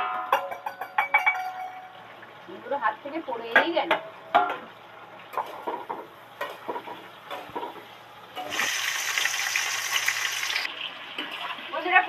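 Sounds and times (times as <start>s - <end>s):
food sizzling in hot oil: 7.3s - 12.0s.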